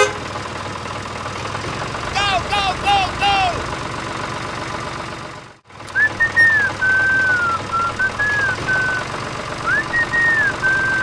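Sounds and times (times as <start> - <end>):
low mechanical rumble: 1.2 - 11.0
person whistling a tune: 5.9 - 9.0, 9.7 - 11.0.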